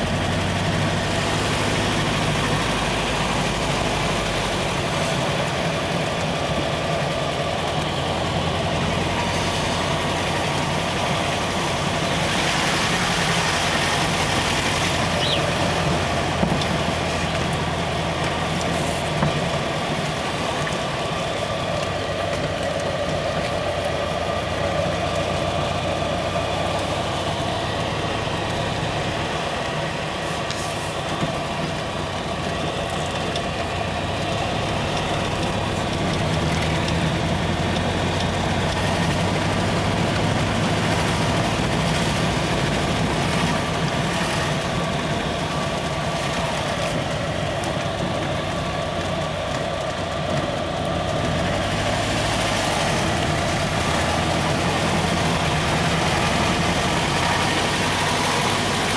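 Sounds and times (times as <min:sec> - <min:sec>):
car engine heard from inside: 0:14.8 - 0:17.3.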